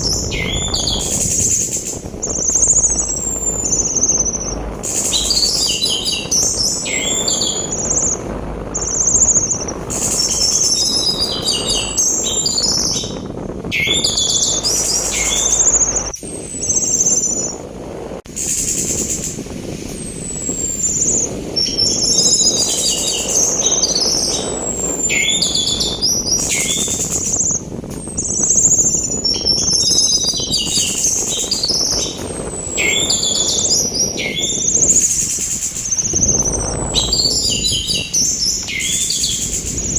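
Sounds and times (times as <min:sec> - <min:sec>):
thrush singing: 0:00.0 - 0:16.1
rushing sea wind: 0:00.0 - 0:39.9.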